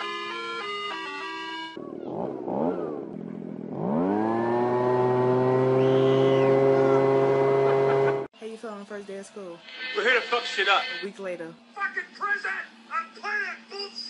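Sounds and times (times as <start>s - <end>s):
engine revving: 1.7s - 8.3s.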